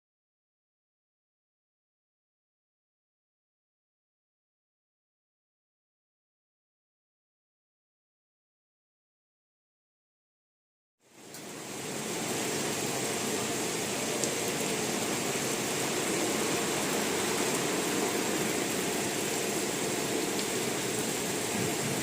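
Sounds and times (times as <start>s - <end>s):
heavy rain pouring: 11.1s - 22.0s.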